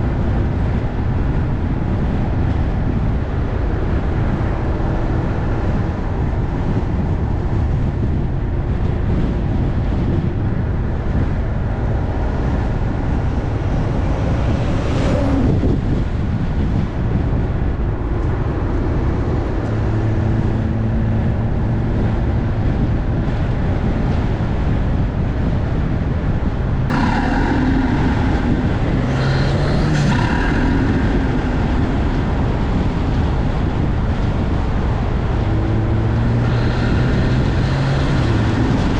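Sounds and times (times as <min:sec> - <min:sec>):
car engine under load: 0:00.0 - 0:38.9
intake whoosh: 0:10.2 - 0:23.4, 0:26.9 - 0:38.9.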